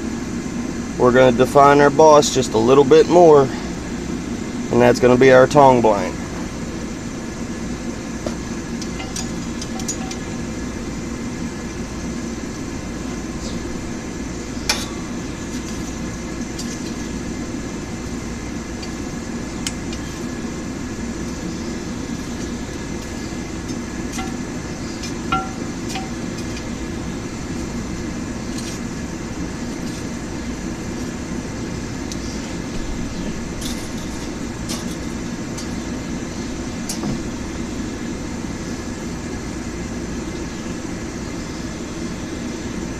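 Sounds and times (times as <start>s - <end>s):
forge and air blower roaring: 0.0s - 42.9s
light metallic clinks: 8.8s - 10.4s, 22.3s - 26.7s.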